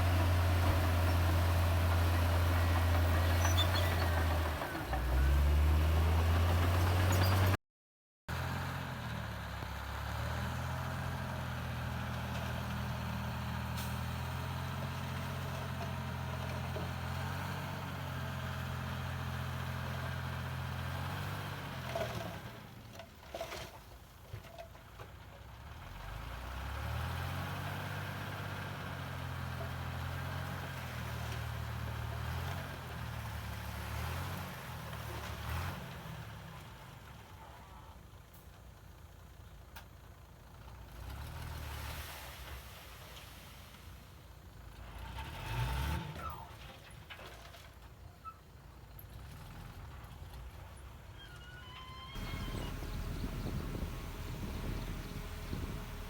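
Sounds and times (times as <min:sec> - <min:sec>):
heavy diesel engine running: 0:52.2 - 0:56.0.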